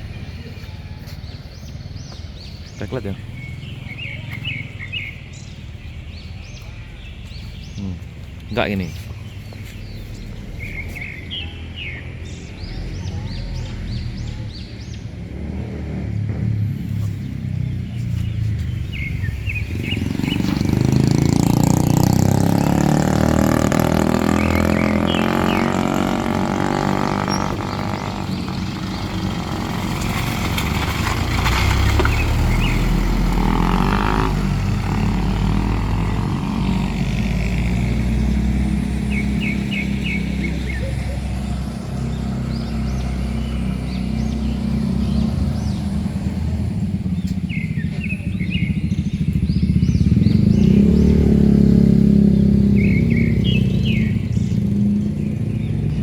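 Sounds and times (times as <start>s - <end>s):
road noise: 0.0s - 56.0s
vehicle engine running: 16.2s - 56.0s.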